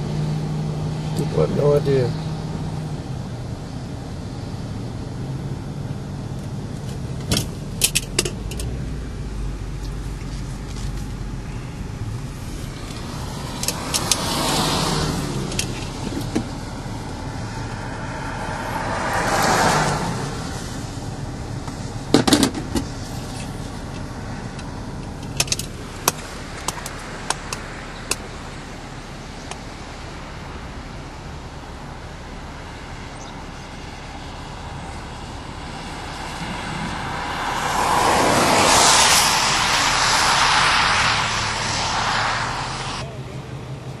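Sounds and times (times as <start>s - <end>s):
road vehicle noise: 0.0s - 44.0s
broad rushing noise: 6.1s - 30.3s, 34.4s - 44.0s.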